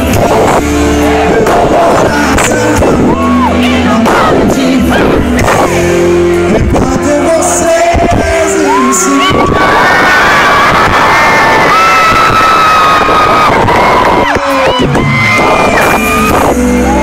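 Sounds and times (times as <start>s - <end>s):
person singing: 0.0s - 9.8s, 14.2s - 17.0s
loud band music: 0.0s - 17.0s.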